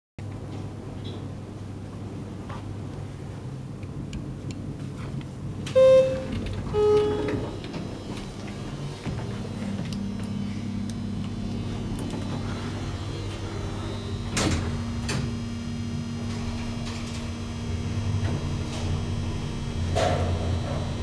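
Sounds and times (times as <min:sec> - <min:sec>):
low hum: 0:00.6 - 0:21.0
elevator doors sliding: 0:04.9 - 0:21.0.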